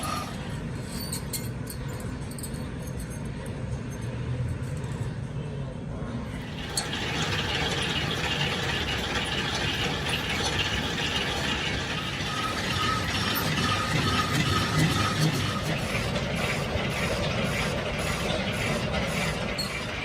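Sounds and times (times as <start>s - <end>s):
machine tool rattling: 6.4s - 20.0s.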